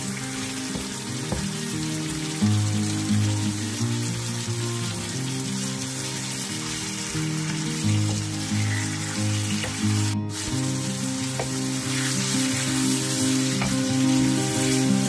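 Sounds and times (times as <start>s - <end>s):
background music with low notes: 0.0s - 15.0s
food sizzling in a frying pan: 0.0s - 15.0s
spatula tapping a pan: 0.6s - 2.3s, 7.5s - 10.1s, 11.2s - 14.3s.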